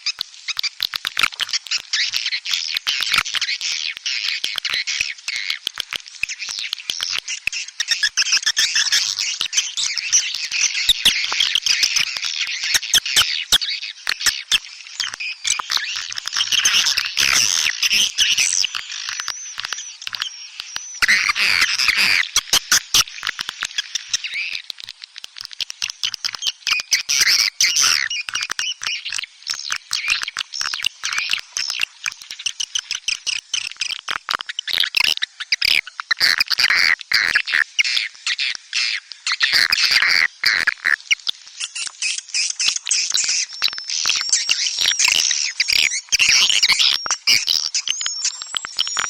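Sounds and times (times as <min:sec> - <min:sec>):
swiftlets twittering: 0:07.9 - 0:24.7.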